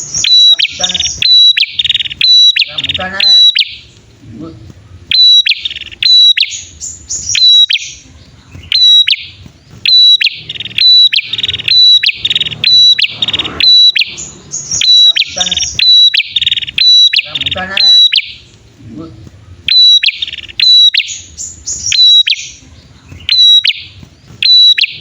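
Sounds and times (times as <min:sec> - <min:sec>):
bird chirps: 0:00.0 - 0:25.0
buzzy trilled bird phrases: 0:00.0 - 0:25.0.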